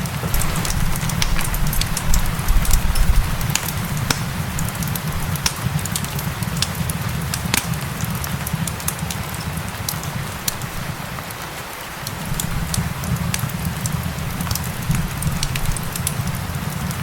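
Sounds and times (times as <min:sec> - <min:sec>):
gentle rain hiss: 0:00.0 - 0:17.0
wood fire crackling: 0:00.0 - 0:17.0.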